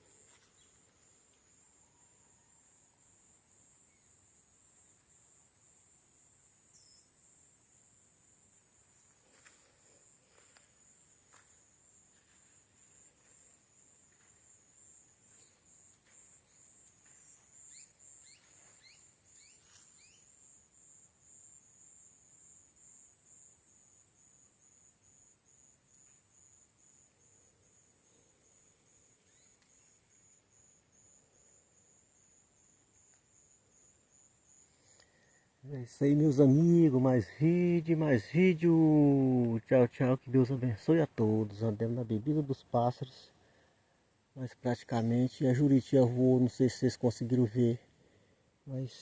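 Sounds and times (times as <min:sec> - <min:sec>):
high-pitched insect drone: 0:06.6 - 0:07.4, 0:11.3 - 0:38.8.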